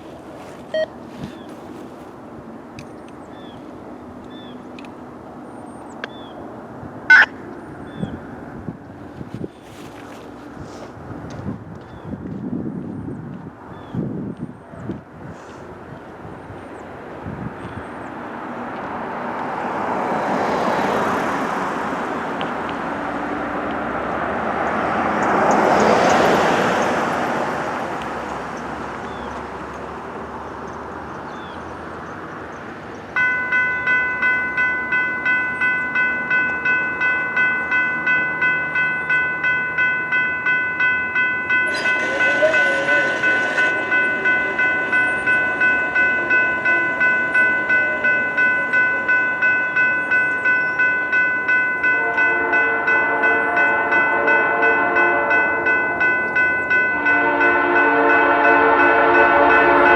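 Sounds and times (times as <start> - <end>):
road vehicles passing: 0.0 - 59.9
crossing bell ringing: 7.1 - 8.5, 33.1 - 59.9.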